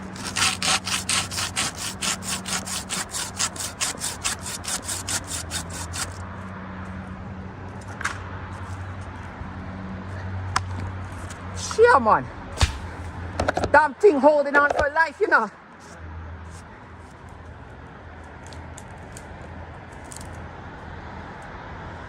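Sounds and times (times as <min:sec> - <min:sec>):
hand saw cutting wood: 0:00.0 - 0:06.2.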